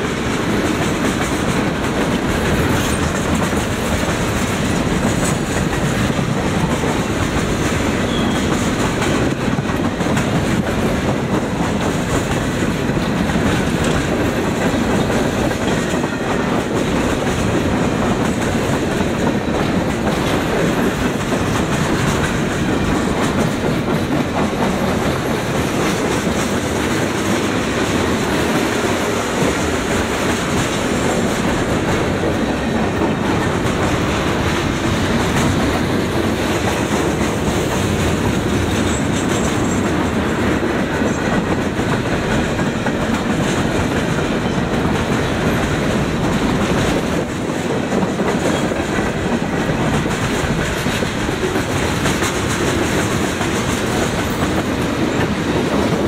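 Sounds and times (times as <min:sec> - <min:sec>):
train wheels clattering on rails: 0:00.0 - 0:56.0.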